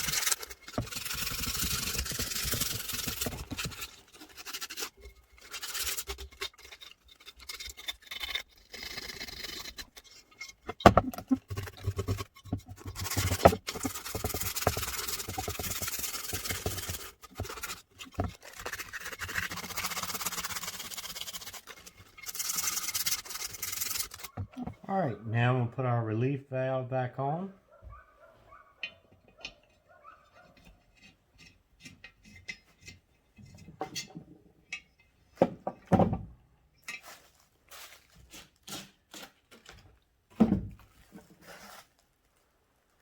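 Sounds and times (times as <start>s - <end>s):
abrasive scratching on metal: 0.0s - 24.4s.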